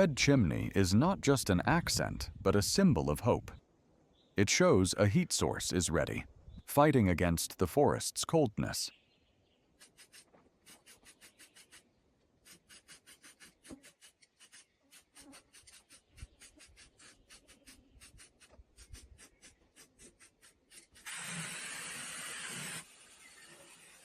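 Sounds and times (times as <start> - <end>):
scraping or rubbing strokes by hand: 9.8 - 24.0.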